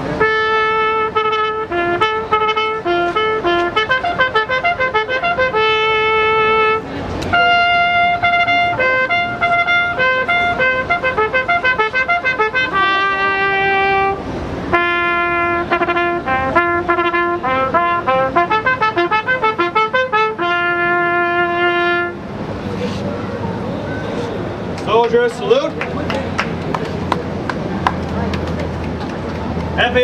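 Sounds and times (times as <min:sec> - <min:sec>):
trumpet melody: 0:00.0 - 0:22.2.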